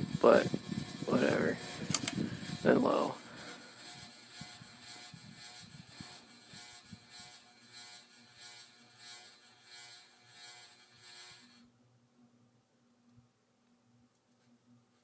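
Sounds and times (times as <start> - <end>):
ceiling fan slowing down: 0.0 - 11.3.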